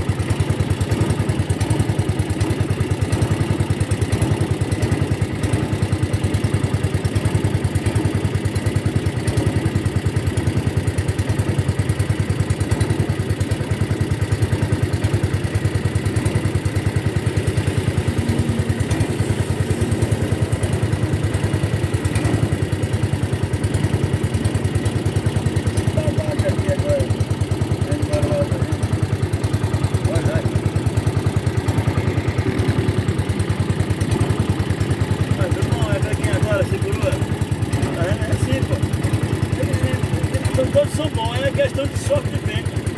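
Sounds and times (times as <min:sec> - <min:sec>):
boat engine chugging: 0:00.0 - 0:42.9.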